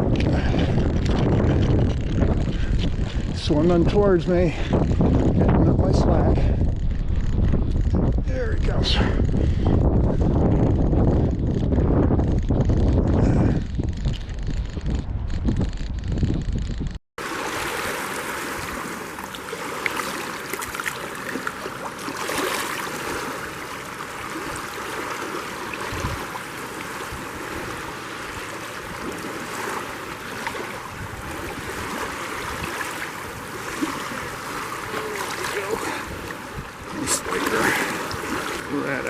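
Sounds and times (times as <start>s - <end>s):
lake water lapping and splashing: 17.2s - 39.0s.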